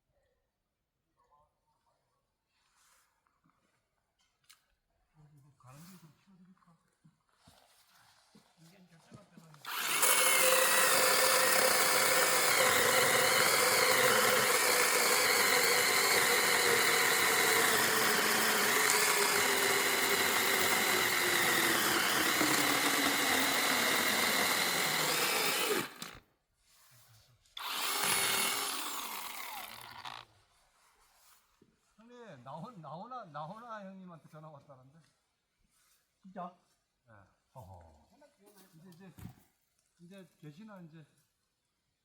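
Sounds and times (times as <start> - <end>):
power tool motor running: 9.6 - 26.2, 27.6 - 30.2.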